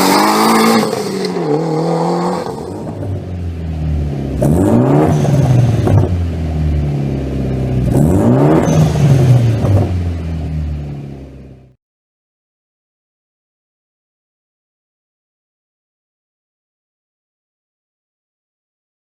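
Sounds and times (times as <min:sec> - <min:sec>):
car engine revving: 0:00.0 - 0:11.7.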